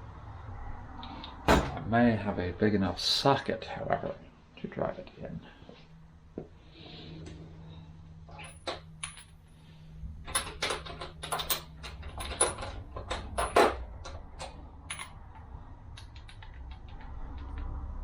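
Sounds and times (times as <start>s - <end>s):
steel sockets clinking and rattling: 10.3s - 17.6s.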